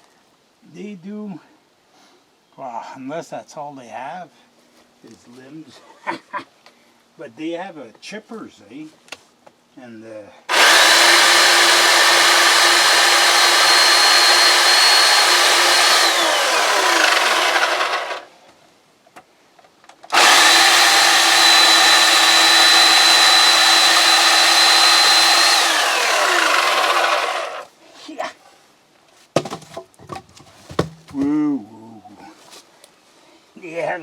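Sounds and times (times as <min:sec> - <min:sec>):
chainsaw motor winding down: 0:10.5 - 0:18.3, 0:20.1 - 0:27.7
electric chainsaw cutting wood: 0:10.5 - 0:18.3, 0:20.1 - 0:27.7.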